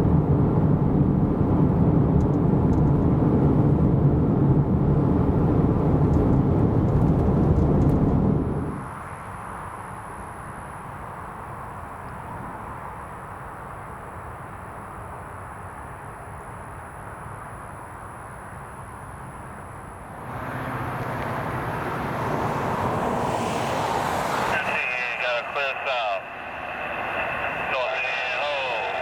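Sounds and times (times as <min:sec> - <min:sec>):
train rumbling: 0:20.1 - 0:29.0.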